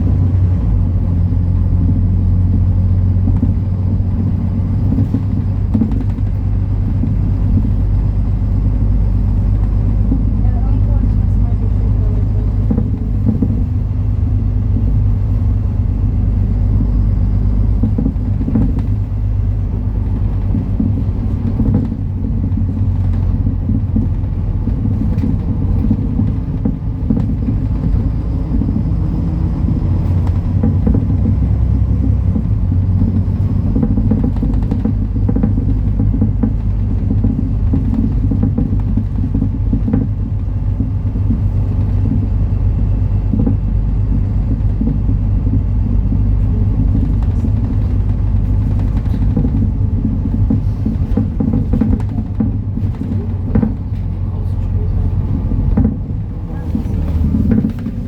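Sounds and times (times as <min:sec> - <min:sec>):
bus engine rumble: 0:00.0 - 0:58.0
faint clicks and rattles: 0:00.0 - 0:58.0.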